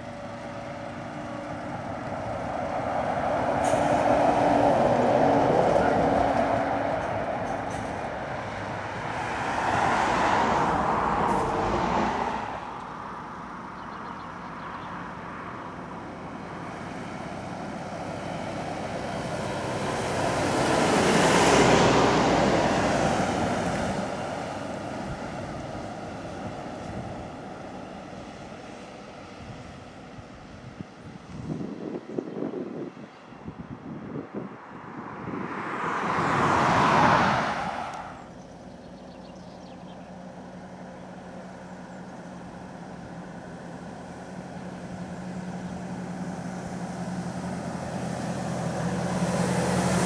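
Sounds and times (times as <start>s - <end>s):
truck diesel engines climbing: 0.0s - 50.0s.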